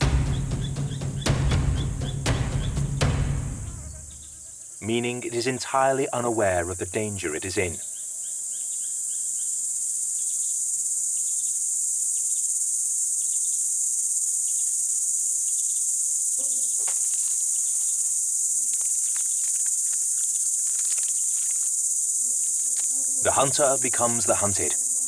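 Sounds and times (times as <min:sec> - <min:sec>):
forest insects chorus: 0:00.0 - 0:25.0
faint chirps and clicks: 0:15.6 - 0:24.7.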